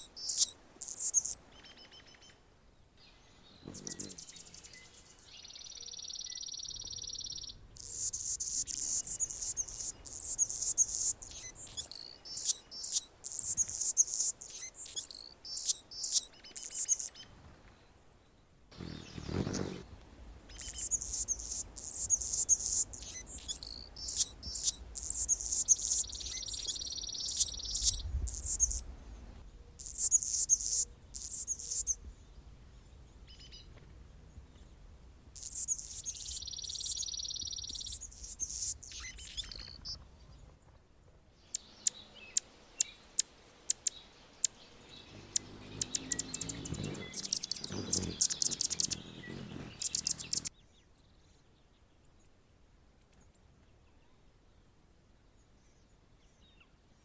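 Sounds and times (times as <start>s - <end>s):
hummingbird singing: 0.0s - 1.4s, 3.2s - 17.2s, 18.8s - 33.7s, 35.4s - 40.0s, 41.5s - 50.5s
hummingbird sharp ticks: 20.6s - 28.8s, 42.8s - 50.5s.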